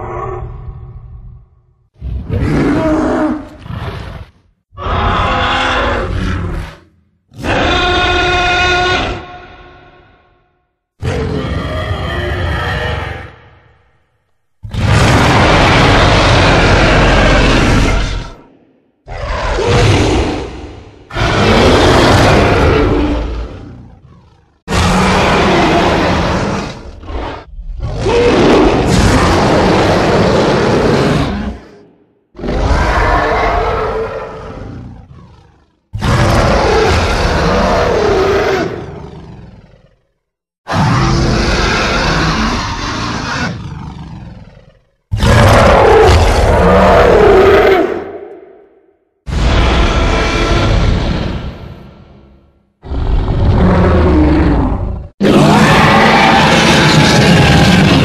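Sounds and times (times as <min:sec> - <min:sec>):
dinosaur roars: 0:00.0 - 0:10.4, 0:11.0 - 0:13.8, 0:14.6 - 0:58.0
dinosaur growl: 0:14.7 - 0:40.1, 0:40.7 - 0:58.0.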